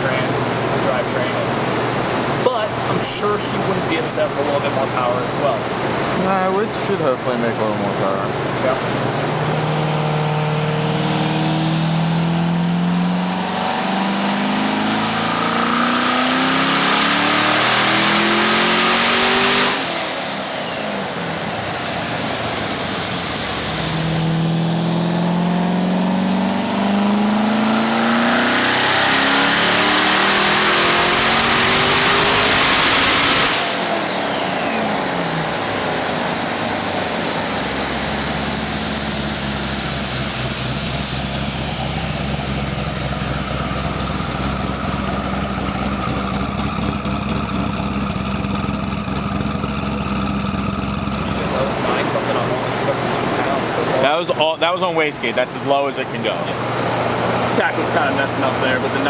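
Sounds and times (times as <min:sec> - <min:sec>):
engine revving at full throttle: 0:00.0 - 0:59.0
rising turbo whistle: 0:08.7 - 0:47.1, 0:51.2 - 0:59.0.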